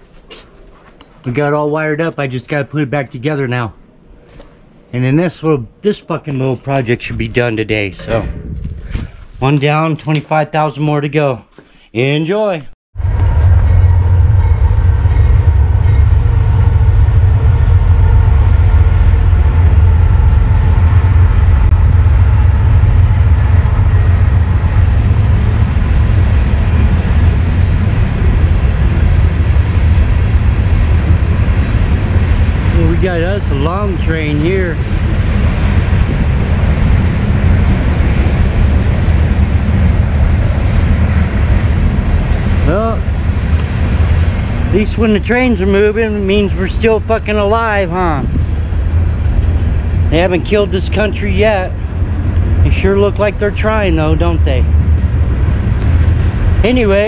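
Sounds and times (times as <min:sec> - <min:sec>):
train rumbling past: 0:13.0 - 0:57.0.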